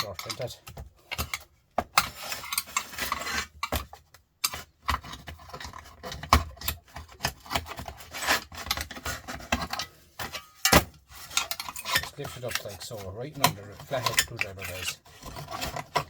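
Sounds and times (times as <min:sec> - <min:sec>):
sharp metal clicks and knocks: 0:00.0 - 0:02.9
metal scraping and rubbing: 0:00.0 - 0:06.2, 0:07.1 - 0:16.0.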